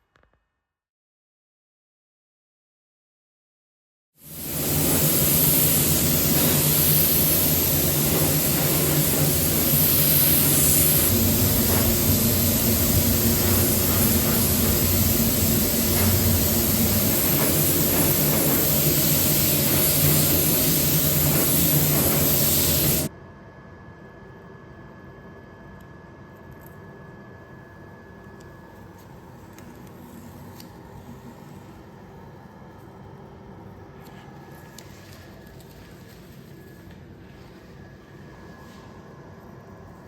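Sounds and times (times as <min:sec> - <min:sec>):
paint spray gun hissing: 0:04.2 - 0:23.1.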